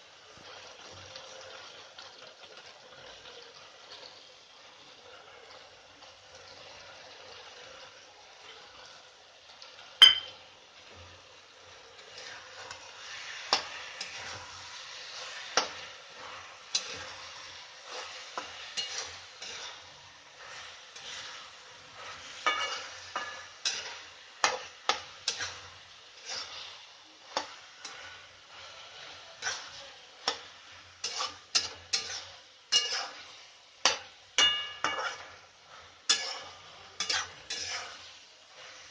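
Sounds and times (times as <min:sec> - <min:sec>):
vegetables sizzling in a pan: 0:00.0 - 0:38.9
metal spoon scraping a pan: 0:10.0 - 0:38.9.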